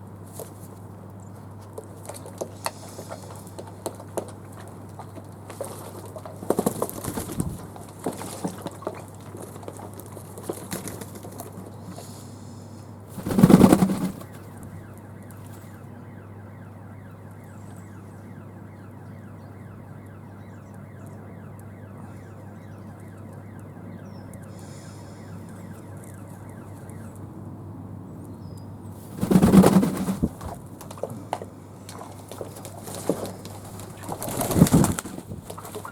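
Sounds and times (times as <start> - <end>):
doves flapping wings: 1.6 - 12.2, 13.1 - 16.2, 29.0 - 35.9.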